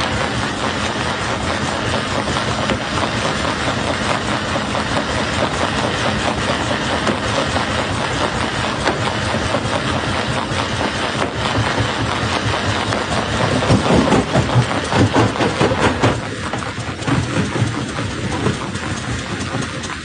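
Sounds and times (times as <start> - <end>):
jaw crusher running: 0.0 - 20.0
low engine drone: 0.0 - 20.0.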